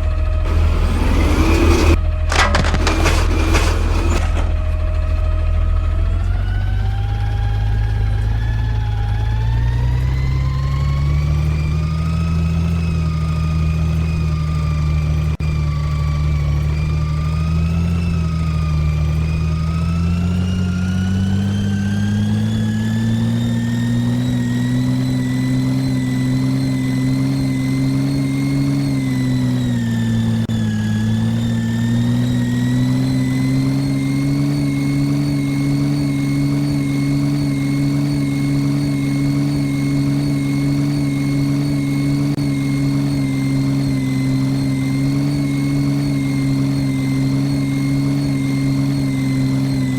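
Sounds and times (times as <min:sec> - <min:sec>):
garbage truck engine revving: 0:00.5 - 0:05.0, 0:17.0 - 0:49.9.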